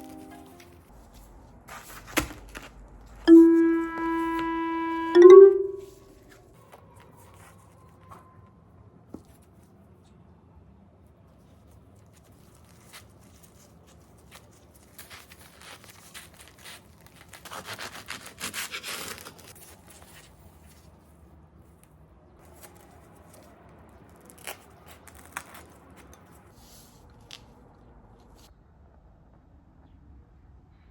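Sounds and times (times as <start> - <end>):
tearing or crinkling: 0.1 - 3.2, 11.5 - 21.0, 22.4 - 27.5.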